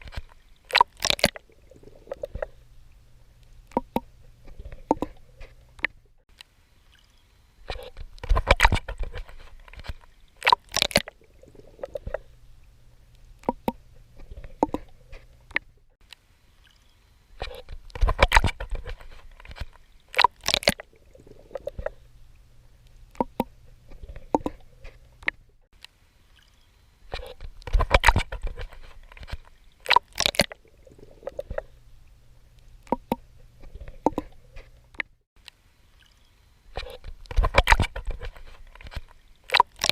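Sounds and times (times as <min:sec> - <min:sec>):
water clicks and gurgles: 0:00.0 - 0:39.9
low steady rumble: 0:01.4 - 0:06.8, 0:11.1 - 0:16.5, 0:20.8 - 0:26.2, 0:30.6 - 0:39.4.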